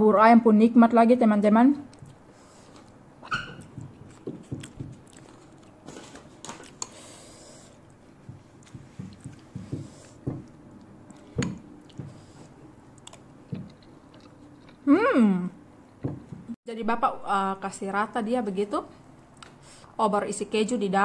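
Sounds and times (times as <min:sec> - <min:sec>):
chewing porridge: 0:01.9 - 0:14.8.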